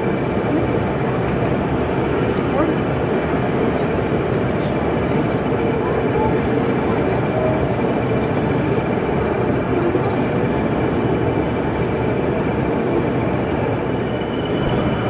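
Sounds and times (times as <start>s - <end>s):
constant high whine: 0.0s - 15.0s
crowd hubbub in a hall: 0.0s - 15.0s
higher whine: 13.8s - 15.0s.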